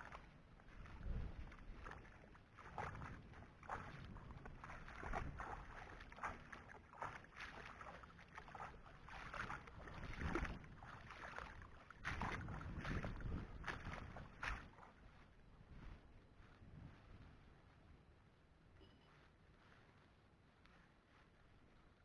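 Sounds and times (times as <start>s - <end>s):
shallow water sloshing: 0.0s - 15.3s
wind rumble on microphone: 0.0s - 18.4s.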